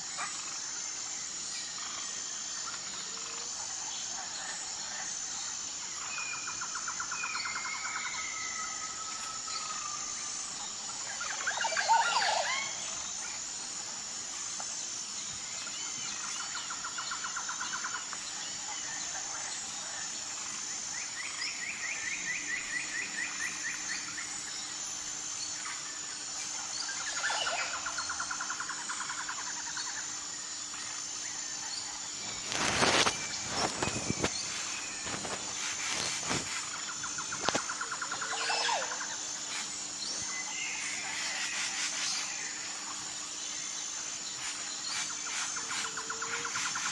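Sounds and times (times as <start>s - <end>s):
high insect chorus: 0.0s - 46.9s
birds calling and trilling: 20.5s - 46.9s.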